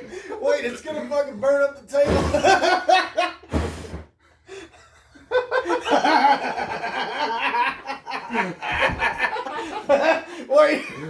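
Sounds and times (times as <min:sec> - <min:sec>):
people laughing: 0:04.6 - 0:11.0.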